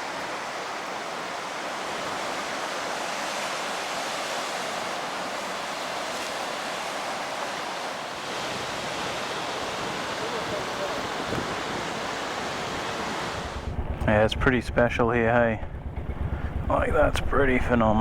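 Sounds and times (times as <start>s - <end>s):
ocean waves breaking: 0.0s - 14.1s.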